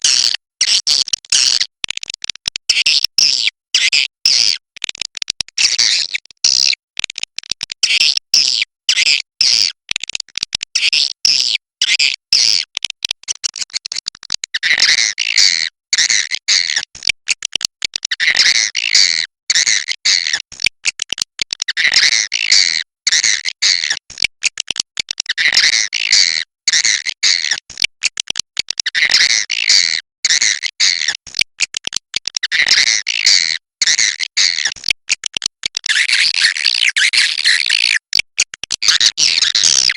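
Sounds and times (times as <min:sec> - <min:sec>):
swiftlet calls over speaker: 0:35.9 - 0:38.0.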